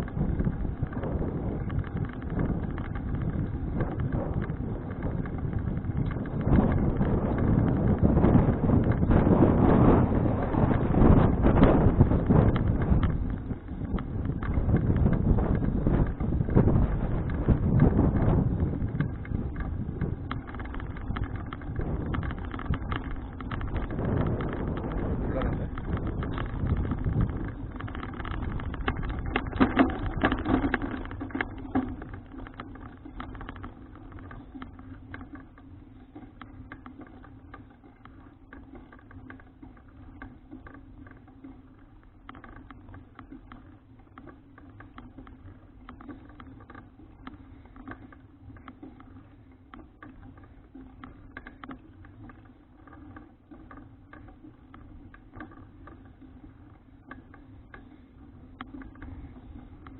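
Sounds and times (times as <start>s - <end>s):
wind noise: 0.0s - 35.5s
bicycle clicks and rattles: 0.0s - 59.9s
road rumble: 0.0s - 59.9s.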